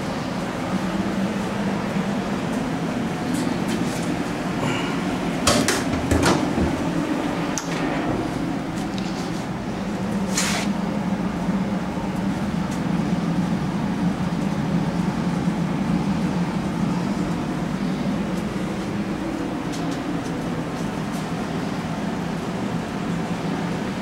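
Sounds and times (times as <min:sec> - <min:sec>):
engine running steadily: 0:00.0 - 0:24.0.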